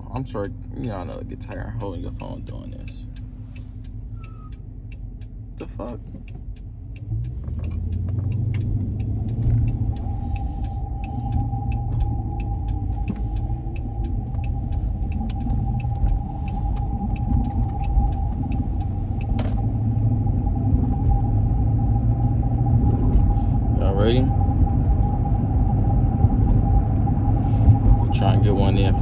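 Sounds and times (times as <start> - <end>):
engine and road rumble: 0.0 - 29.0
steady whine: 0.0 - 29.0.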